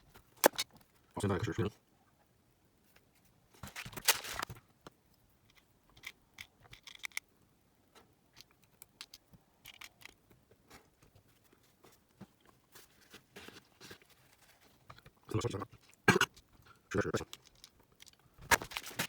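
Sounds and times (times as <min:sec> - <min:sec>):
clicks of small parts: 0:00.4 - 0:00.8, 0:05.5 - 0:07.3, 0:08.4 - 0:10.2, 0:17.2 - 0:19.0
scraping of small parts: 0:03.6 - 0:04.6, 0:17.2 - 0:19.0.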